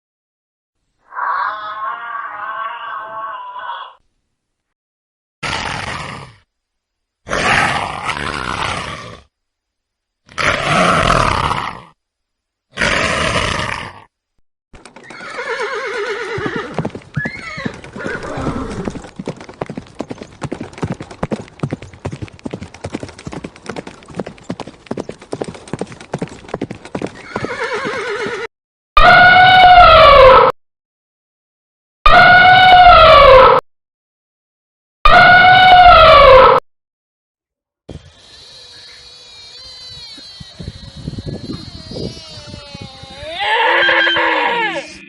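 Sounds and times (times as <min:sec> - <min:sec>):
loud high pitched animal call: 0:01.0 - 0:04.0, 0:27.2 - 0:30.5, 0:32.1 - 0:33.6, 0:35.1 - 0:36.6, 0:37.9 - 0:45.0
hooves clip-clopping: 0:14.8 - 0:15.5, 0:16.4 - 0:28.4
horse whinnying: 0:14.9 - 0:19.2, 0:26.9 - 0:28.5, 0:37.9 - 0:45.0
short animal calls: 0:37.9 - 0:45.0.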